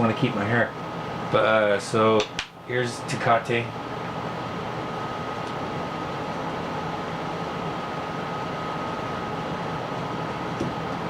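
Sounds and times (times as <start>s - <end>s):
machinery hum and hiss: 0.0s - 11.0s.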